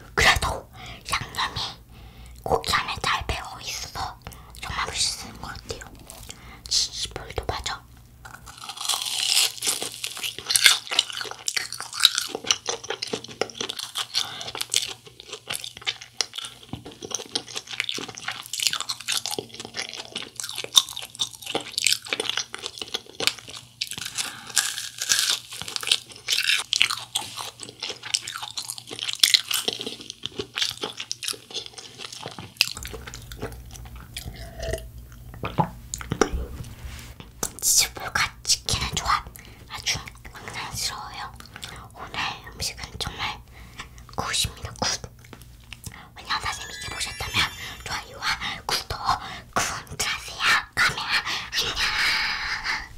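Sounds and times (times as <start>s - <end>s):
crunching and chewing: 8.2s - 36.3s, 39.1s - 46.4s.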